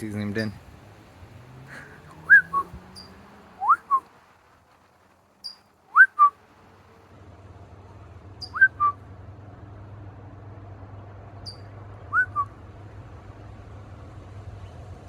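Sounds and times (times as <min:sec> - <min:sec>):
small bird chirping: 0:01.7 - 0:04.1, 0:05.4 - 0:06.3, 0:08.4 - 0:09.0, 0:11.4 - 0:12.5
person whistling two notes: 0:02.3 - 0:02.6, 0:08.6 - 0:09.0.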